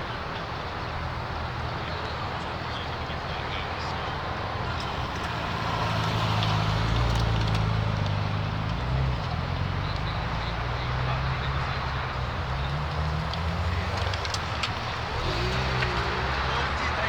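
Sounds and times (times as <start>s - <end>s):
background noise: 0.0s - 17.0s
car engine running: 0.7s - 17.0s.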